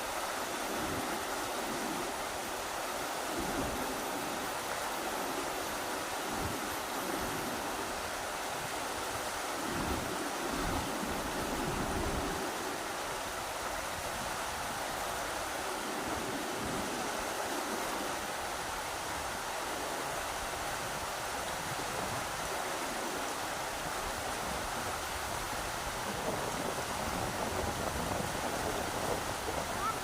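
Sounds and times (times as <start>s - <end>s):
rushing river: 0.0s - 30.0s
low wind rumble: 23.9s - 30.0s.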